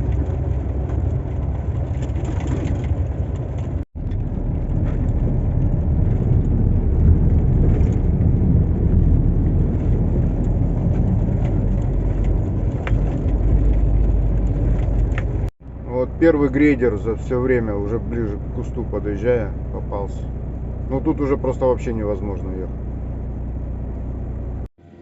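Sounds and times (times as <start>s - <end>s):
light rattles: 0.0s - 15.5s
diesel engine drone: 0.0s - 25.0s
road rumble: 0.0s - 25.0s.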